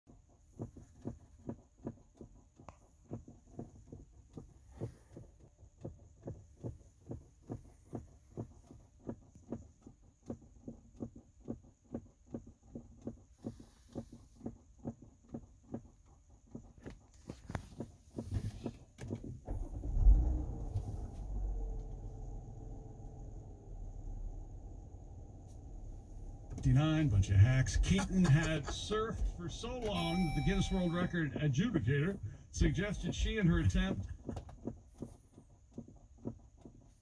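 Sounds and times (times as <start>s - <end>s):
soft knocking in car: 0.1s - 19.4s, 34.0s - 37.0s.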